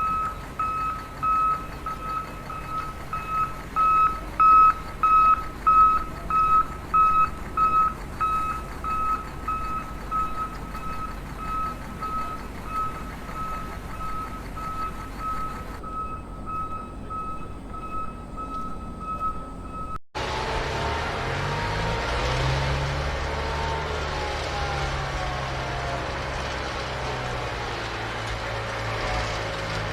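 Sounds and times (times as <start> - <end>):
electronic beeper short beeps: 0.0 - 20.0
noisy low rumble: 0.0 - 20.0.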